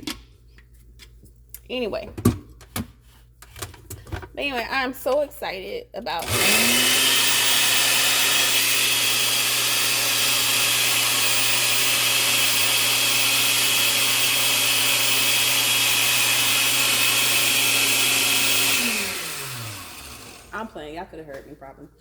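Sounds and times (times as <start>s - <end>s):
electric blender running: 6.2s - 20.7s.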